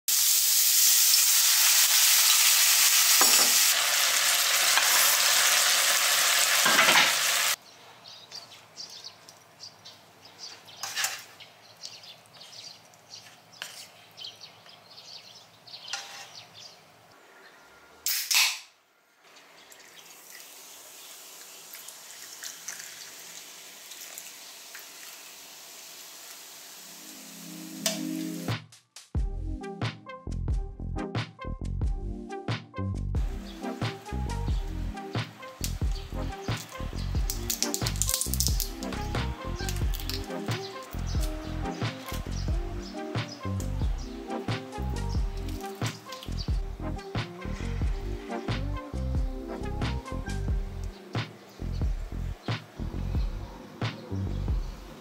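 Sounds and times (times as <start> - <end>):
shrimp sizzling in a pan: 0.1 - 7.6, 20.0 - 28.5, 35.2 - 38.9, 39.7 - 41.0.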